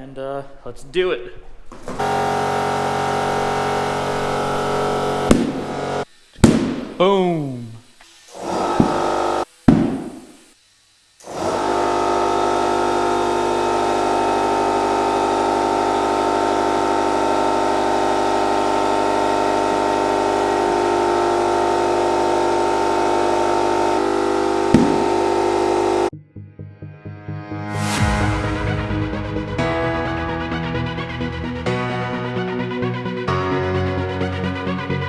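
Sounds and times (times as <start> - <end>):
air compressor running: 1.7 - 26.1
sharp thump: 6.4 - 7.0, 9.7 - 10.3, 24.7 - 25.1.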